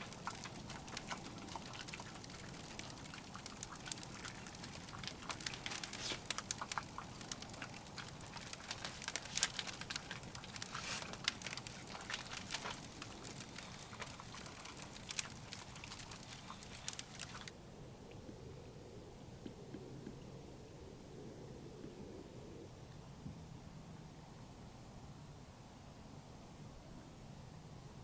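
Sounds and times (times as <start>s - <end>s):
wood fire crackling and popping: 0.0s - 17.5s
low steady hiss: 0.0s - 28.0s.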